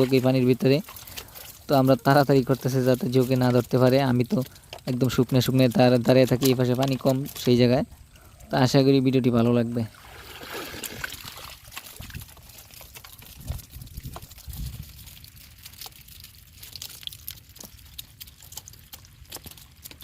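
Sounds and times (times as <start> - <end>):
water dripping: 0.0 - 8.7, 9.8 - 20.0
water pouring and trickling: 0.0 - 20.0
low water splashes: 9.9 - 13.3.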